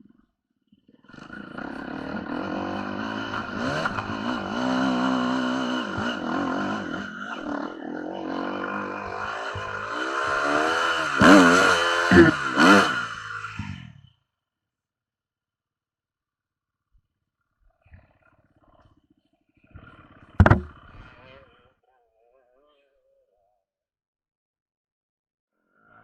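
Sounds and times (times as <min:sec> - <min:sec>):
motorcycle engine revving: 0:01.1 - 0:14.0, 0:19.9 - 0:21.3.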